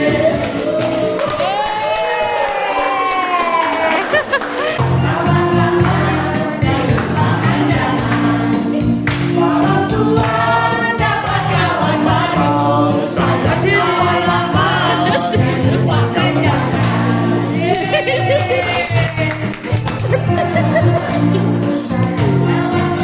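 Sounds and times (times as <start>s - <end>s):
group of voices singing: 0.0s - 2.3s, 3.6s - 23.0s
instrumental accompaniment: 4.8s - 23.0s.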